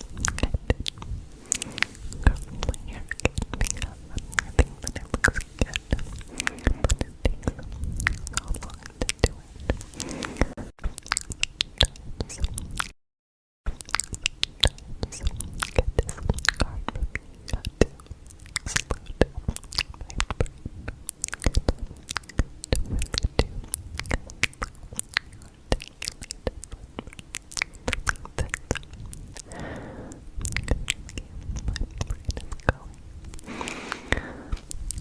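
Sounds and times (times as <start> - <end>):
mouth clicks and smacks: 0.0 - 13.0, 13.7 - 35.0
breathy sound: 1.3 - 2.4, 5.7 - 7.1, 9.8 - 10.7, 29.4 - 30.3, 33.4 - 34.7.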